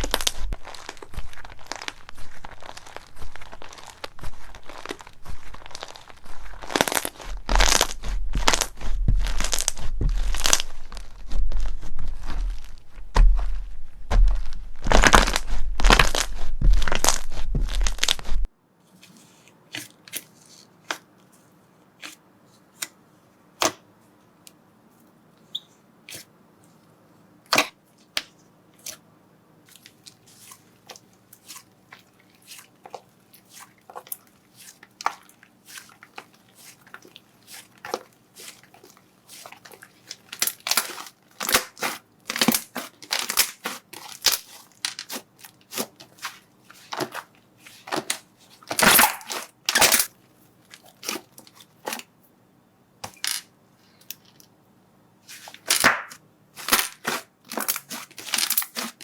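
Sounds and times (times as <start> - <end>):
slime popping and crackling: 0.0 - 13.5, 14.1 - 18.5, 29.8 - 50.1.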